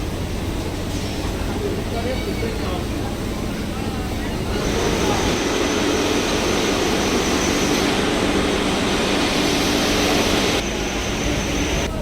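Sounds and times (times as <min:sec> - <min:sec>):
machinery humming and whining: 0:00.0 - 0:12.0.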